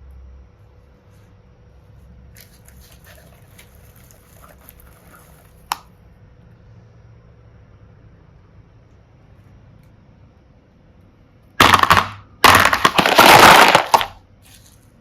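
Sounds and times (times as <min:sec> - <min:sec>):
plastic pieces clicking in slime: 0:11.6 - 0:14.2.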